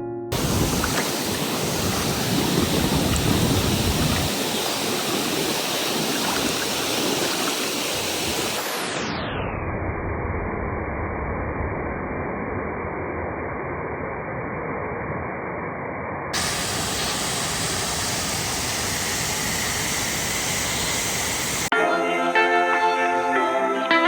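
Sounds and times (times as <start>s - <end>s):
rushing water: 0.3s - 9.0s, 16.4s - 21.7s.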